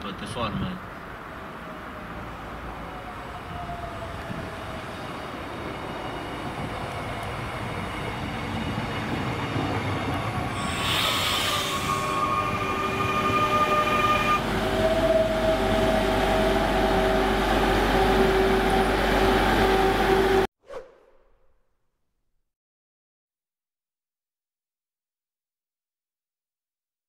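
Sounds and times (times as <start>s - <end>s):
train rolling noise: 2.7s - 20.5s
short air hiss: 10.6s - 12.0s
brake squeal: 10.6s - 20.5s.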